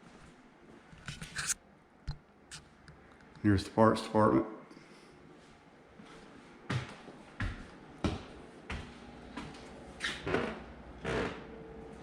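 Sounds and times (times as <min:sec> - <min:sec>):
footsteps walking: 0:00.0 - 0:01.6, 0:05.3 - 0:10.1.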